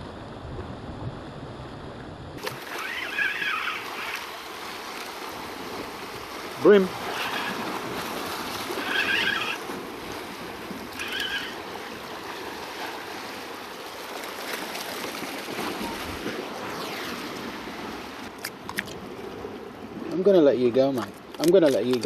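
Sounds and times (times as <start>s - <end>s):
wind noise: 0.0s - 4.2s
surf washing: 0.0s - 22.0s
short high squeaks: 2.6s - 4.3s, 7.1s - 7.6s, 8.8s - 9.6s, 11.0s - 11.6s.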